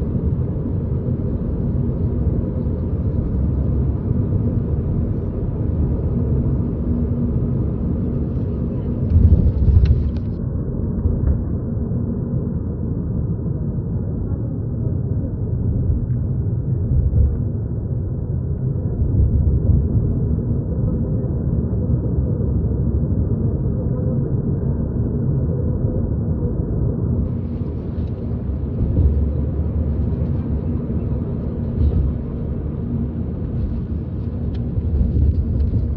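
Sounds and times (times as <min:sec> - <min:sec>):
vehicle rumbling on road: 0:00.0 - 0:35.9
heavy low thumps: 0:27.3 - 0:30.6.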